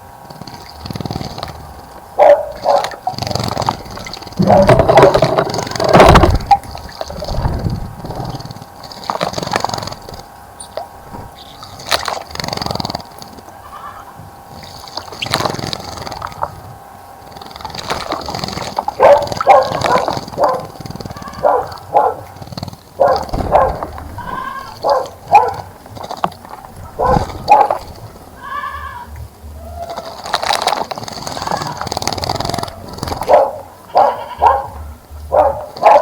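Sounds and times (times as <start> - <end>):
sudden noisy sounds: 1.5 - 13.5, 23.0 - 33.3
animal short loud calls: 23.3 - 25.2.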